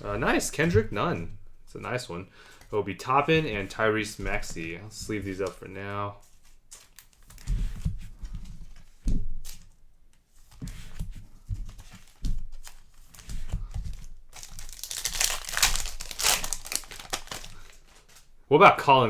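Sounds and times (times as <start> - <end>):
handling trading cards: 2.4 - 18.4
foil wrapper tearing and crinkling: 14.3 - 18.3.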